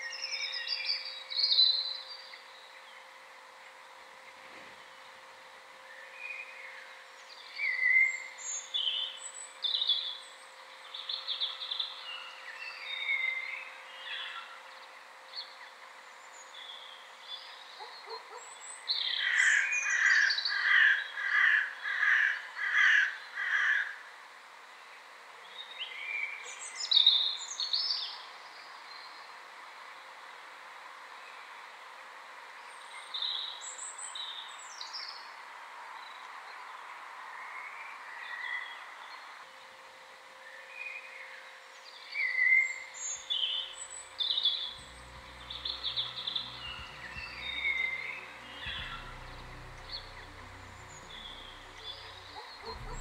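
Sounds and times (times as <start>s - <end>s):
songbirds singing: 0.0s - 24.0s, 24.8s - 30.2s, 32.5s - 35.4s, 36.0s - 53.0s
evenly repeated bird notes: 43.1s - 53.0s.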